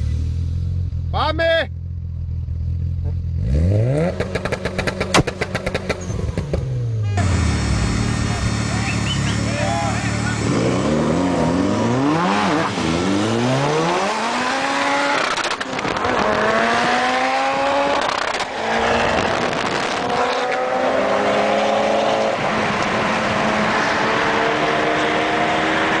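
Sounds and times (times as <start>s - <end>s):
car engine accelerating hard: 2.5s - 26.0s
sharp exhaust pops: 4.0s - 6.7s.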